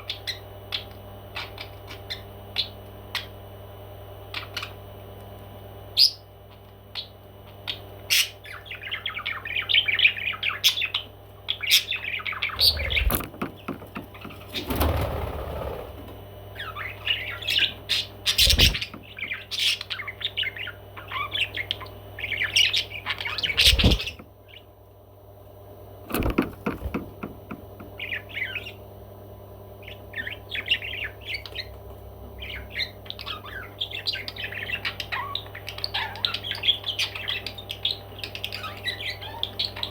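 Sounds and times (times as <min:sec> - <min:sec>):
steady low hum: 0:00.0 - 0:39.9
parrot chattering and squawking: 0:07.0 - 0:13.2, 0:16.6 - 0:24.7, 0:32.4 - 0:39.9.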